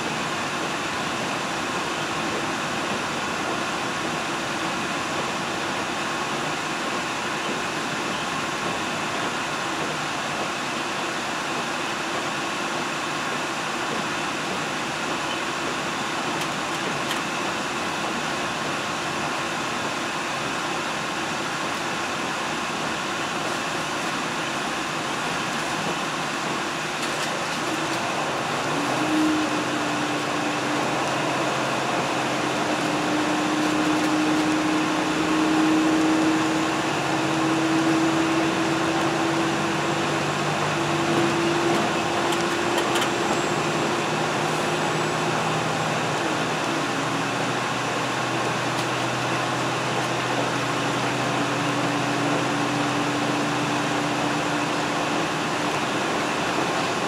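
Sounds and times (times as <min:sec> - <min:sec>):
train wheels on rail: 0:00.0 - 0:57.0
engine hum rising in pitch: 0:28.0 - 0:47.8.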